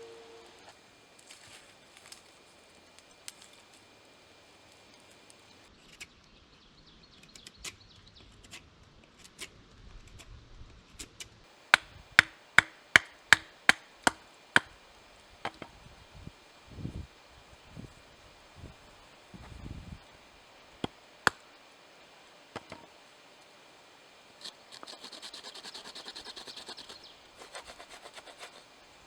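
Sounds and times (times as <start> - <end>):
axe chopping wood: 11.7 - 14.8, 15.5 - 15.8, 20.8 - 21.6, 22.6 - 22.9.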